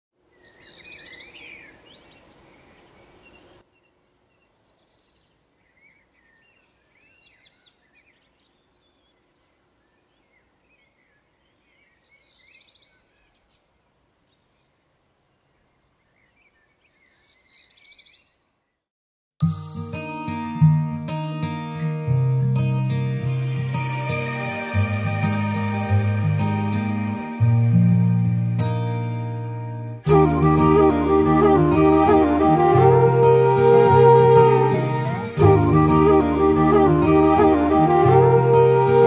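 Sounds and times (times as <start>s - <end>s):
birds chirping: 0.2s - 13.8s
outdoor background noise: 0.2s - 18.9s.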